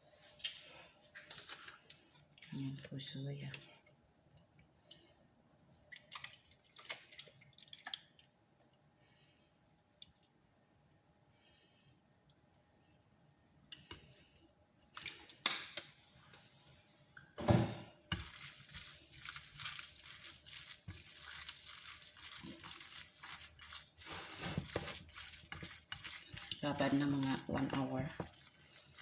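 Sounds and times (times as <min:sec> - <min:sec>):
wet squishing of meat mixing: 0:05.7 - 0:08.3, 0:18.1 - 0:29.0.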